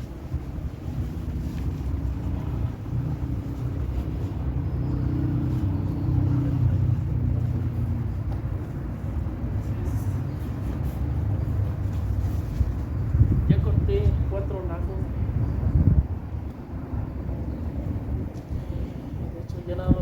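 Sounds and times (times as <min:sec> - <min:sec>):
vehicle engine rumble: 0:00.0 - 0:20.0.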